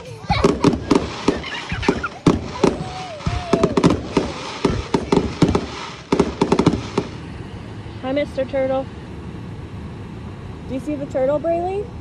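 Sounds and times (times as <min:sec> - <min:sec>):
fireworks bangs and crackling: 0:00.0 - 0:07.4.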